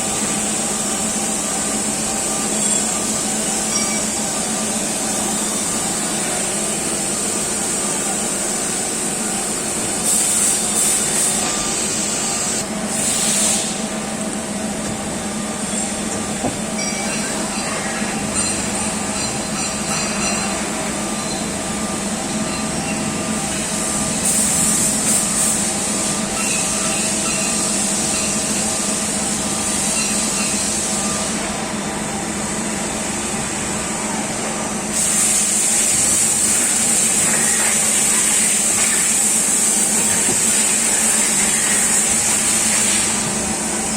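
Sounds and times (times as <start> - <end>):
loud bursts of hissing: 4.8 - 14.2, 34.9 - 43.9.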